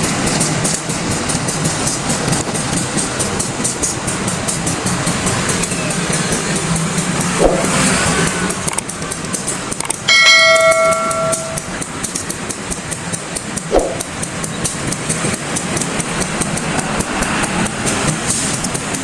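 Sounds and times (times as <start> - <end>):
diesel locomotive running: 0.0 - 19.0
bell-like ring: 10.1 - 11.8.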